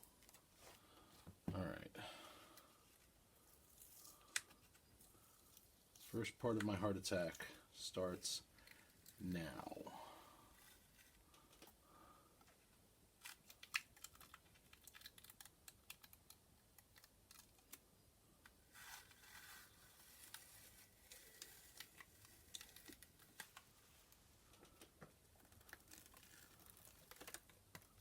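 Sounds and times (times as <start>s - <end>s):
tape peeling clicks and crackles: 13.2s - 17.8s, 18.4s - 23.8s, 24.5s - 28.0s.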